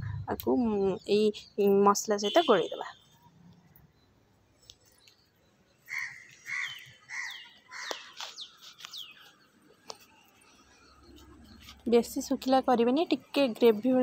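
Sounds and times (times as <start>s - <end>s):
birds calling harshly: 4.9s - 11.8s.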